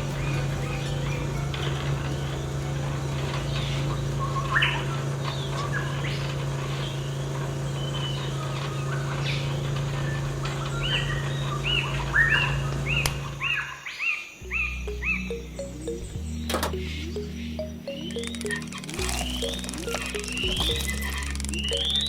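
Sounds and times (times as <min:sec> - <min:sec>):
birds chirping and calling: 0:07.8 - 0:22.0.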